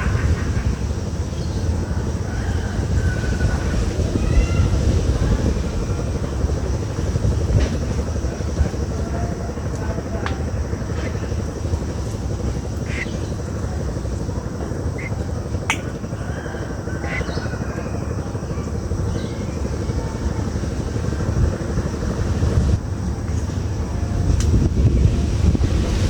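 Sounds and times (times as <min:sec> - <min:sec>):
wind buffeting microphone: 0:00.0 - 0:26.0
bird chirps: 0:12.8 - 0:13.4, 0:17.0 - 0:17.6.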